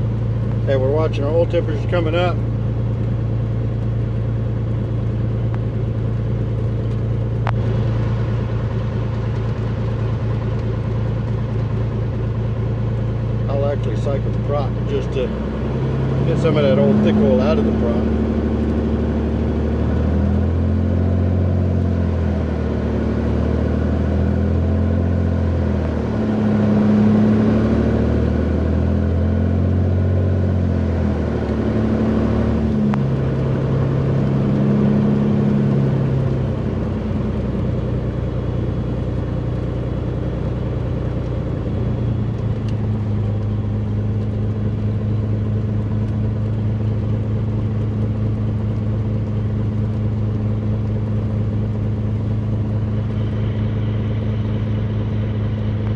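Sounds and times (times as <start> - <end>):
propeller aircraft engine running: 0.0 - 55.9.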